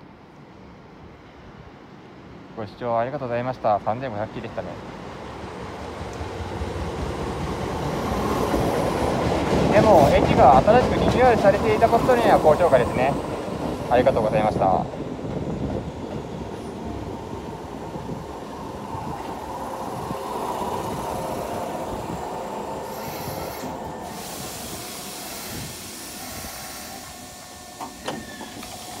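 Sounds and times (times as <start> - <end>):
train rumble and whine: 0.0 - 29.0
train doors clunking open: 15.1 - 29.0
air hiss: 22.5 - 29.0.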